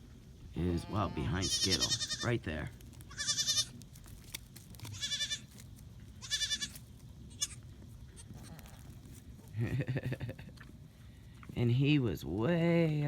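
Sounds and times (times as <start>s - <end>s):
goats bleating: 0.6s - 3.8s, 4.9s - 5.6s, 6.2s - 9.0s.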